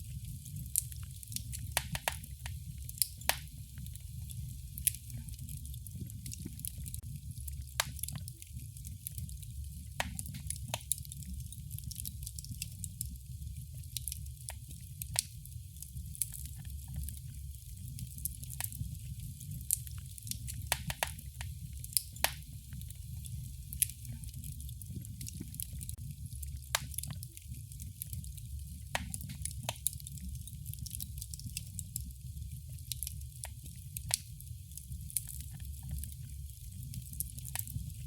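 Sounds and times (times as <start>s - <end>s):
sharp pops and snaps of fire: 0.0s - 38.0s
wood fire crackling: 0.0s - 38.0s.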